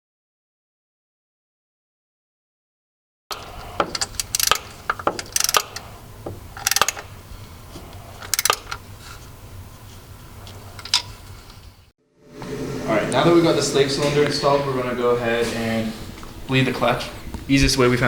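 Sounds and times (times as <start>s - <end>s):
metal tools clinking and rattling: 3.3s - 6.0s, 6.6s - 7.1s, 8.2s - 8.8s
low steady hum: 3.3s - 18.0s.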